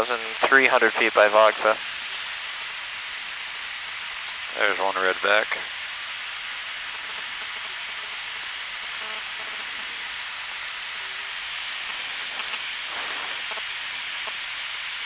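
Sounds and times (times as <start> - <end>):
airplane cabin engine hiss: 0.0 - 2.5, 4.5 - 5.8, 7.6 - 15.0.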